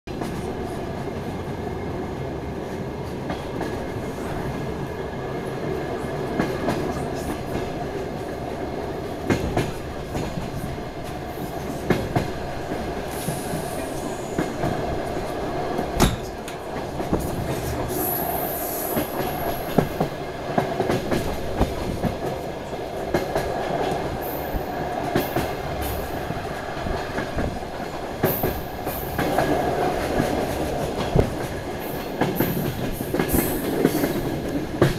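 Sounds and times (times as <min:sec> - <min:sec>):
train running rumble: 0:00.1 - 0:34.9.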